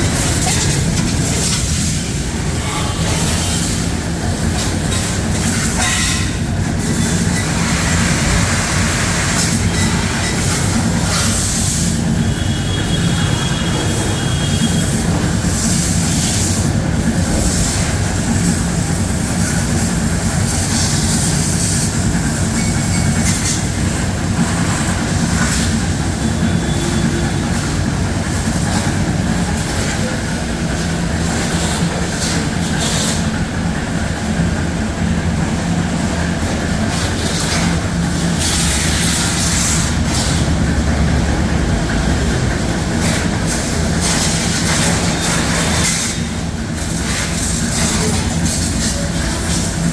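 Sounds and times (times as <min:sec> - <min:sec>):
water jet spraying: 0:00.0 - 0:33.3, 0:36.8 - 0:49.9
pressure washer motor hum: 0:00.0 - 0:49.9.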